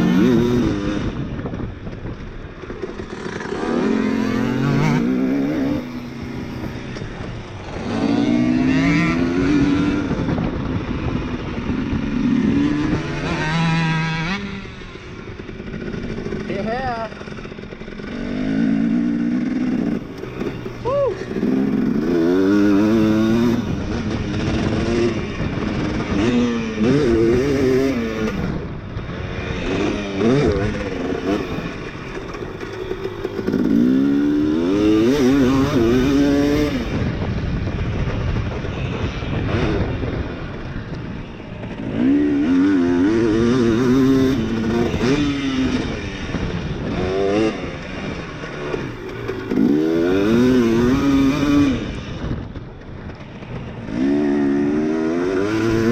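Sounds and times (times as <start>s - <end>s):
dirt bike engine revving: 0.0s - 1.5s, 2.5s - 55.9s.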